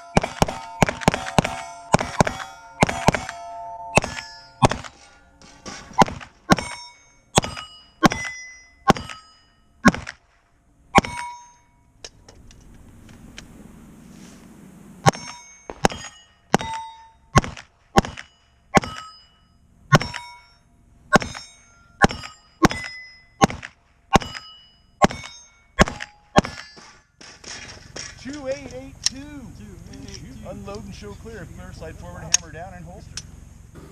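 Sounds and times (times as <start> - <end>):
pistol shots: 0.0 - 5.0, 5.9 - 6.8, 9.8 - 10.3, 15.0 - 19.1, 21.1 - 28.2
steel plate ringing: 0.0 - 9.9, 10.9 - 12.0, 15.0 - 17.4, 18.0 - 23.5, 24.1 - 28.6.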